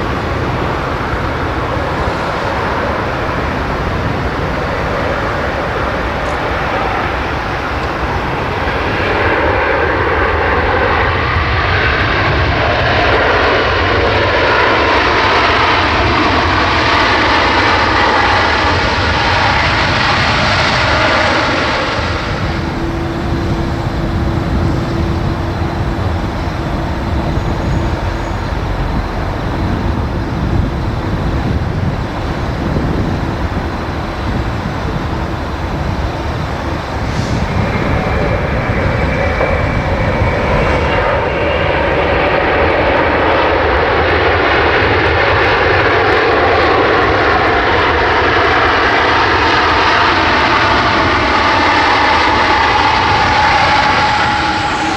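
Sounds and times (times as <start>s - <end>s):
jet engine rushing: 0.0s - 54.9s
faint steady whine: 14.4s - 54.9s.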